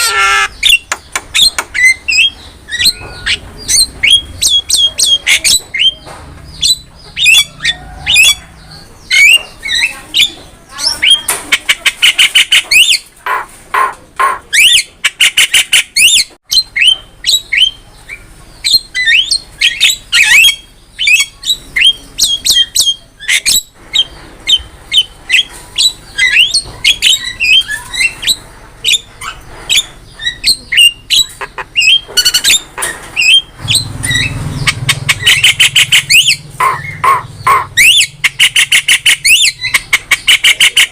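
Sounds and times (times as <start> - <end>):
bird singing whistles and squawks: 0.0 - 6.0, 14.5 - 40.9.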